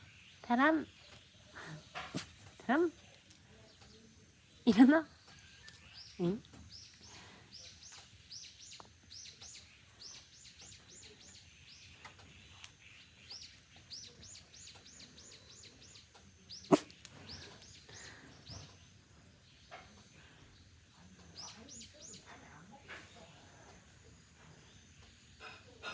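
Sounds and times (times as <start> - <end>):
small bird chirping: 0.0 - 20.1.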